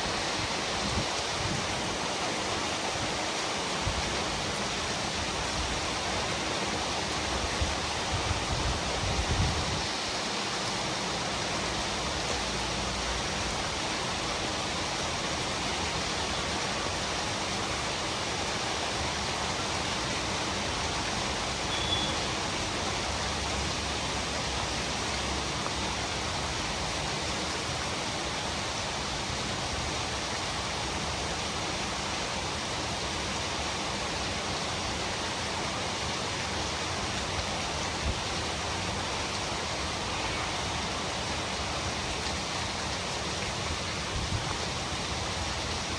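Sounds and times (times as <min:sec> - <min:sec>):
steady rain: 0:00.0 - 0:45.9
faint high peep: 0:21.7 - 0:22.3.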